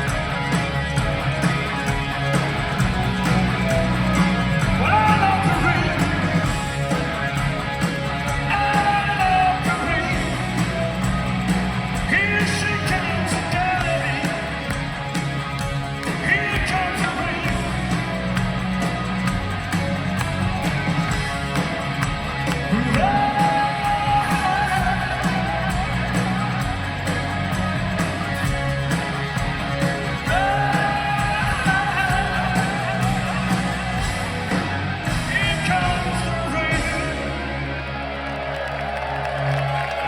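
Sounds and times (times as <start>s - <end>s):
rock band playing live: 0.0s - 40.0s
person singing: 22.6s - 26.4s, 30.0s - 37.8s.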